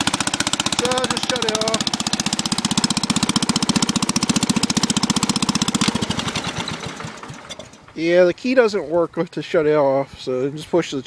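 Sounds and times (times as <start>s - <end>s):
tractor engine popping exhaust: 0.0s - 8.3s.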